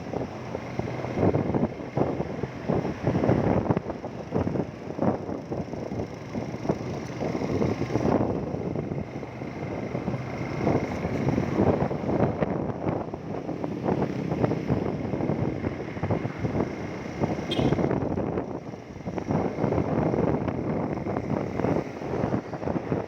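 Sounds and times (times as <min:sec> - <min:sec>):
road noise: 0:00.0 - 0:23.0
wind buffeting microphone: 0:00.0 - 0:23.0
motorcycle engine: 0:00.1 - 0:23.0.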